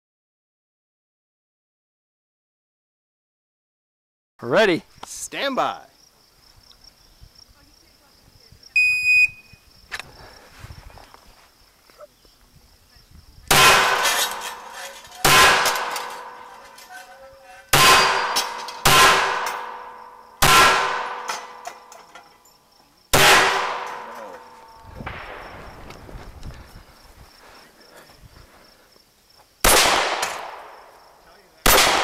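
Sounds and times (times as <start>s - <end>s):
pistol shots: 13.5s - 16.6s, 17.7s - 21.9s, 23.1s - 25.6s, 29.6s - 30.9s, 31.6s - 32.0s
ringing clang of steel targets: 13.5s - 22.6s, 23.2s - 24.9s, 30.1s - 30.9s.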